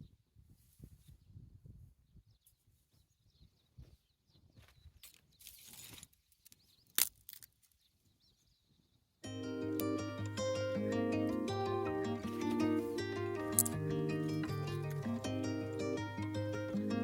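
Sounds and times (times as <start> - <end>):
crinkling rustle: 4.7 - 7.9.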